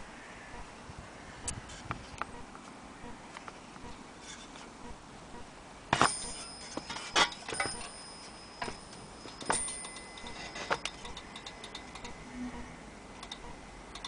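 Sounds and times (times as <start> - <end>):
faint metallic ring: 6.0 - 14.0
mantel clock ticking: 6.2 - 14.0.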